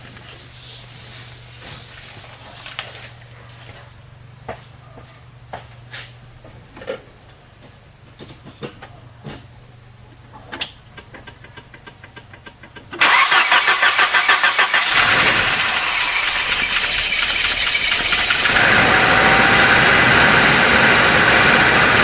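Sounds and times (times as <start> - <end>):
car engine cranking and starting: 10.6 - 22.0.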